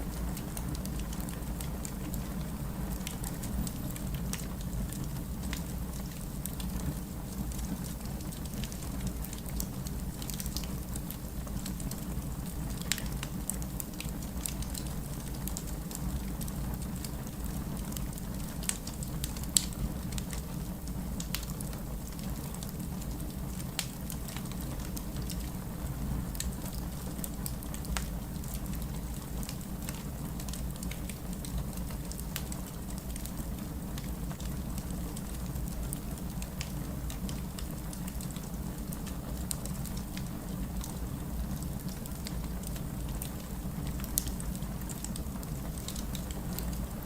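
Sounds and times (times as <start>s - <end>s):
fireplace crackling and popping: 0.0s - 47.0s
rain: 0.0s - 47.0s.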